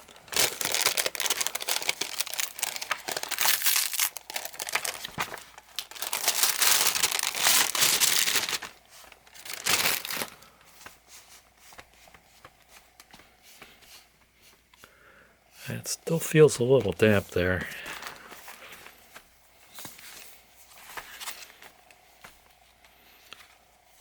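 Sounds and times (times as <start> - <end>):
paper crinkling and rustling: 0.0 - 14.6, 16.4 - 23.6.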